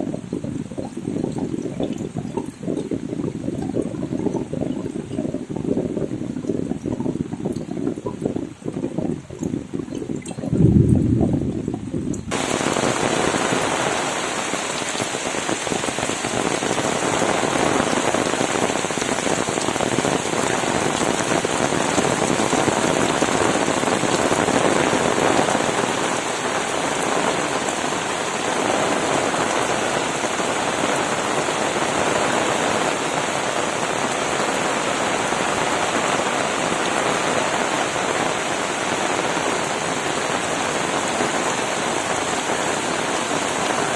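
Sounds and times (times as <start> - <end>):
heavy rain pouring: 0.0 - 43.9
loud low thump: 10.4 - 12.3.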